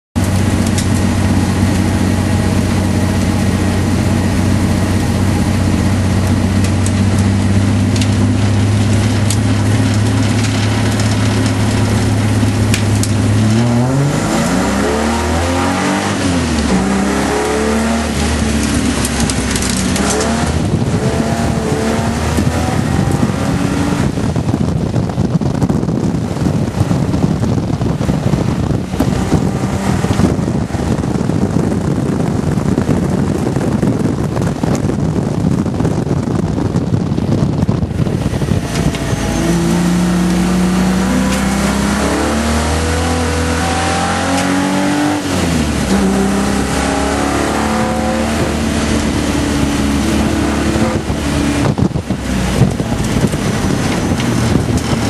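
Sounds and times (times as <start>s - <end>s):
car engine running: 0.2s - 55.0s
wind and road noise: 0.2s - 55.0s.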